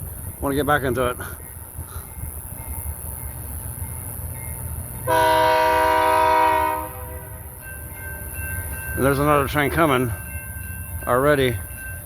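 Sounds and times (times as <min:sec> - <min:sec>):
train rumble: 0:00.0 - 0:12.0
locomotive air horn: 0:05.1 - 0:07.4.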